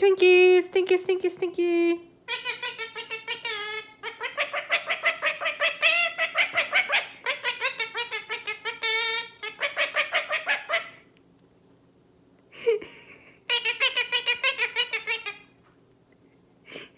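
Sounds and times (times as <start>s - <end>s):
bird calling in rapid notes: 2.3s - 11.0s.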